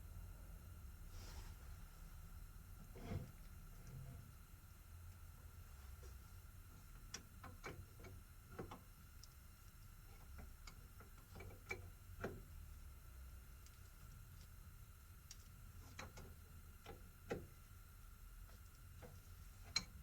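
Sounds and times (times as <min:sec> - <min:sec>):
low steady hum: 0:00.0 - 0:20.0
light clicks and ticks: 0:18.5 - 0:20.0.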